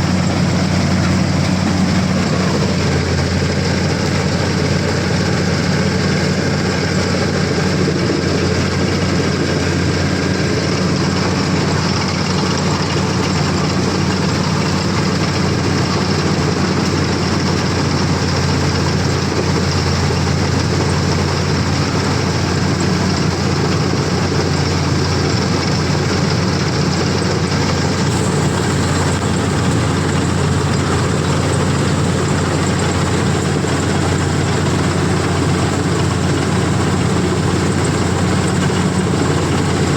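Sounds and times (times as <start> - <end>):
combine harvester engine drone: 0.0 - 39.9
machine clattering: 11.4 - 39.9.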